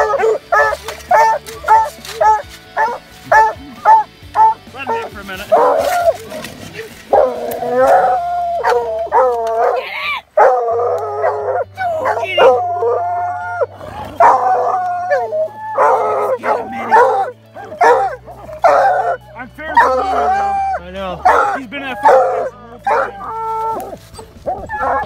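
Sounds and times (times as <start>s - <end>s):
hounds baying and howling: 0.0s - 25.0s.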